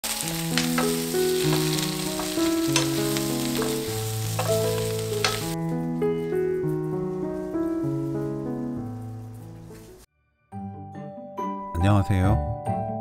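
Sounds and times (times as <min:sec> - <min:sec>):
food sizzling in frying pan: 0:00.0 - 0:05.6, 0:06.2 - 0:10.0
gentle background music: 0:00.1 - 0:13.0
wooden spatula scraping pan: 0:00.6 - 0:05.6.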